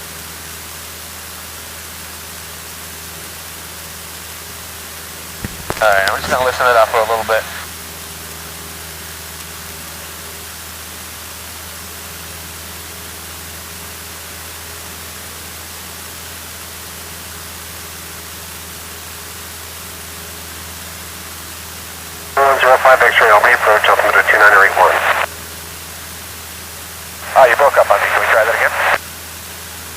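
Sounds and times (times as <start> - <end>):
aircraft engine drone: 5.4 - 7.8, 22.4 - 25.3, 26.7 - 29.0
steady hiss: 22.4 - 25.3.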